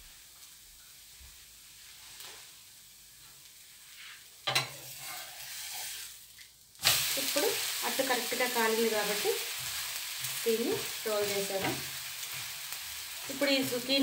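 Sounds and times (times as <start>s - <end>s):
loud sizzling in butter: 0.0s - 14.0s
metal spatula scraping pan: 4.5s - 6.1s.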